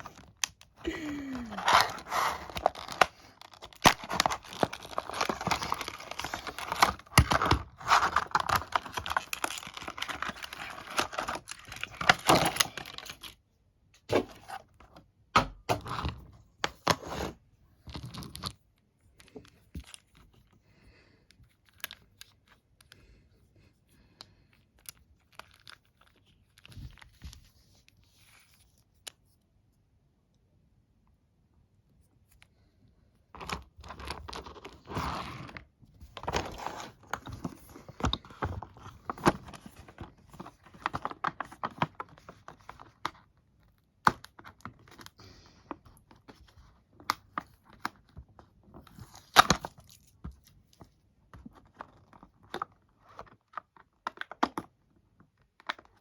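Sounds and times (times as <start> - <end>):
packaging ripping and crinkling: 0.0 - 13.3
handling sounds: 0.0 - 13.4.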